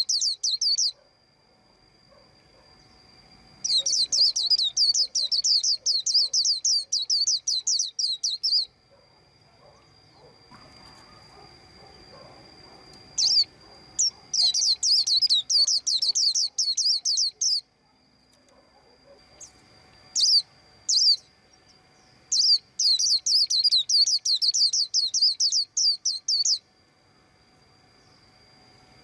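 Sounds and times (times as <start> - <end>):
bird chirping: 0.0 - 1.0, 3.6 - 17.7, 19.0 - 26.6.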